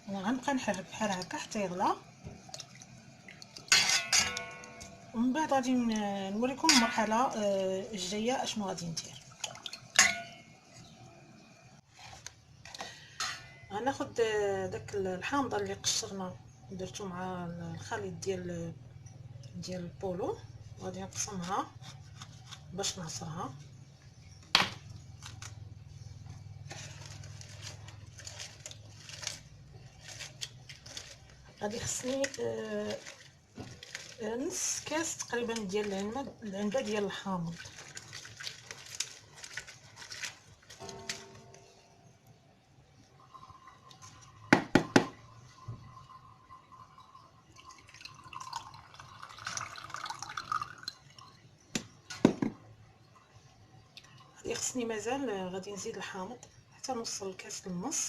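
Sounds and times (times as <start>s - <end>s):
juice dripping into a glass: 45.4s - 51.7s, 53.1s - 54.4s.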